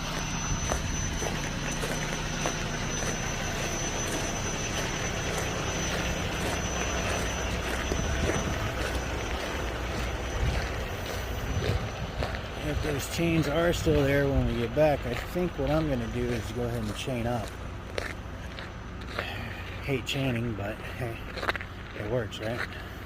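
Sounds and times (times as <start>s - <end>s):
diesel truck engines idling: 0.0s - 23.0s
thin high whine: 0.0s - 23.0s.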